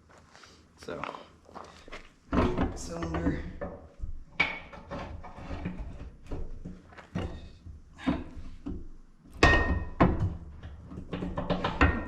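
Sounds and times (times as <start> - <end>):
metal clunks and knocks: 2.3 - 12.0.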